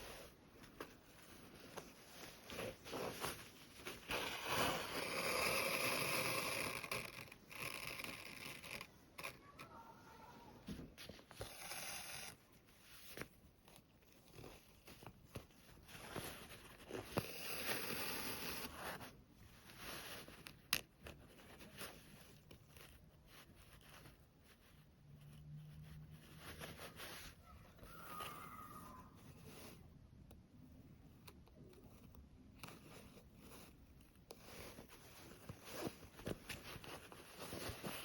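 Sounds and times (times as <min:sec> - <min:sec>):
cloth rustling and sliding: 0:00.0 - 0:05.0, 0:32.8 - 0:38.0.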